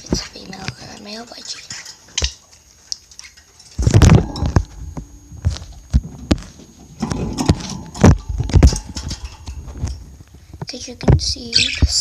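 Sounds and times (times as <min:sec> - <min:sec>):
knocks clicks and rustling: 0:03.2 - 0:11.3.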